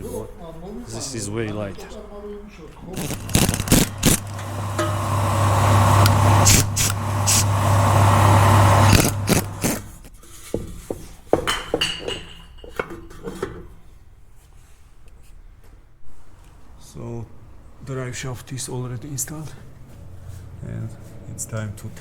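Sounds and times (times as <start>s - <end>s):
workshop machine humming: 2.8s - 10.1s.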